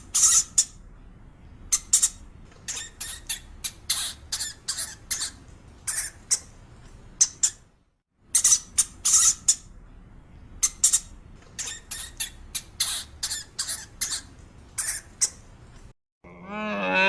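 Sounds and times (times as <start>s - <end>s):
high-pitched animal squeaks: 0.0s - 0.7s, 1.7s - 6.5s, 8.4s - 9.6s, 10.6s - 15.4s.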